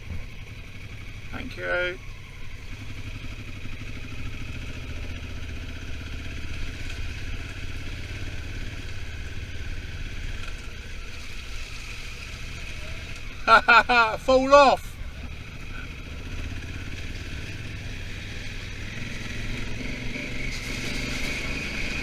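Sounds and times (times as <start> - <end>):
motorcycle engine cruising: 0.0 - 22.0
wind and road noise: 0.0 - 22.0.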